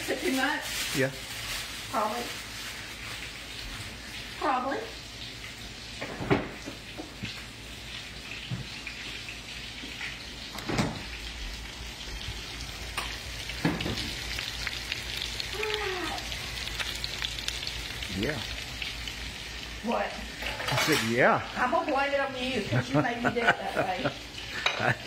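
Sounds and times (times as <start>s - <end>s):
patties sizzling in a skillet: 0.0s - 25.0s.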